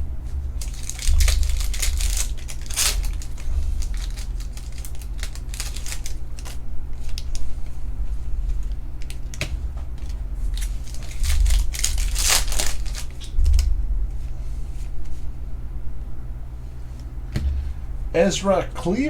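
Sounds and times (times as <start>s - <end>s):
steady low hum: 0.0s - 19.0s
wrappers crinkling and rustling: 0.3s - 13.7s.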